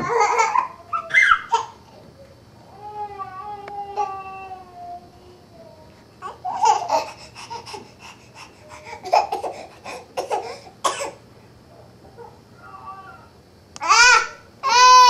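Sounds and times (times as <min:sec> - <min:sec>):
small child laughing and babbling: 0:00.0 - 0:07.9.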